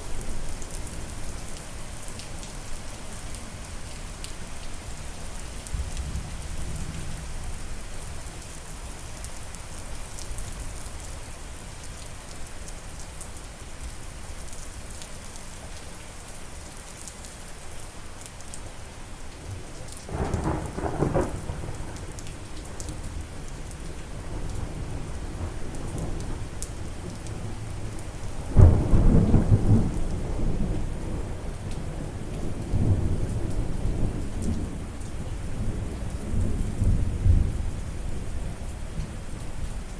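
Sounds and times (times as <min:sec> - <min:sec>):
steady rain falling: 0:00.0 - 0:39.9
thunder rumbling: 0:20.1 - 0:22.1, 0:28.5 - 0:31.2.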